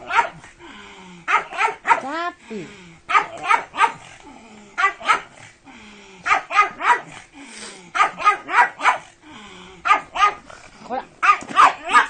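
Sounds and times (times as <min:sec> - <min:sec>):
dog barking: 0:00.0 - 0:00.4, 0:01.3 - 0:02.1, 0:03.1 - 0:04.1, 0:04.8 - 0:05.4, 0:06.2 - 0:07.2, 0:08.0 - 0:09.1, 0:09.8 - 0:10.4, 0:11.2 - 0:12.0.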